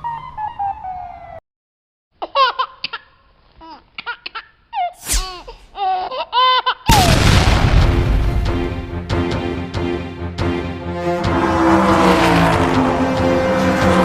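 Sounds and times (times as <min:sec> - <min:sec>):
low boom: 0:06.9 - 0:09.0
music: 0:07.9 - 0:14.0.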